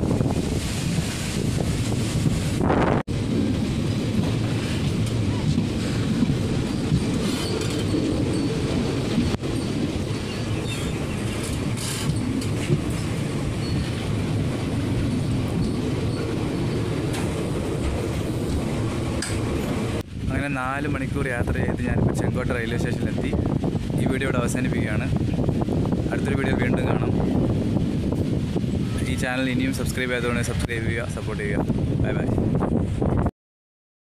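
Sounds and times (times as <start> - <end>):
rail clatter: 0.0 - 20.1
train wheels rumbling: 0.0 - 33.2
wheel squeals: 5.8 - 14.1.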